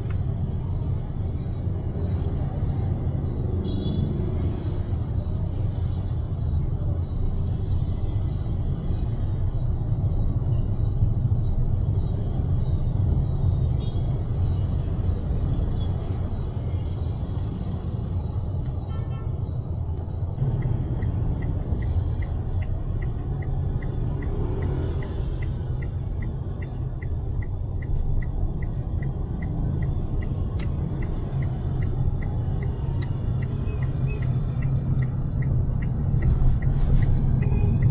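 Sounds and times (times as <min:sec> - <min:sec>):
car road rumble: 0:15.4 - 0:37.9
turn signal ticking: 0:19.6 - 0:37.9.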